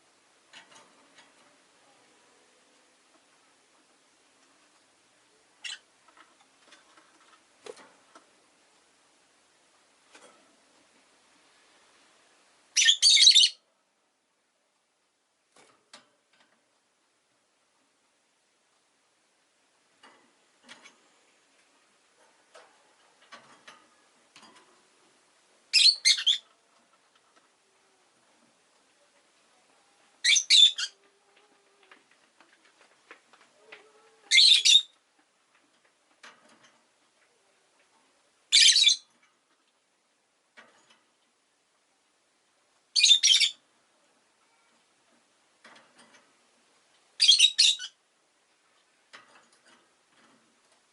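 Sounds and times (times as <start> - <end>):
faint small clicks and rustles: 0.0 - 12.7, 14.4 - 50.9
lovebird high calls: 12.8 - 13.6, 25.7 - 26.4, 30.2 - 31.0, 34.2 - 34.9, 38.5 - 39.1, 43.0 - 43.6, 47.2 - 48.0.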